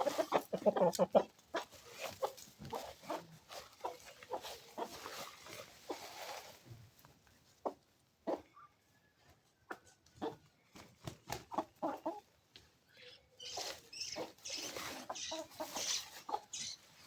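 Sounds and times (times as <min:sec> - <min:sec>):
rustling: 0:00.0 - 0:07.3
chickens clucking: 0:00.0 - 0:17.0.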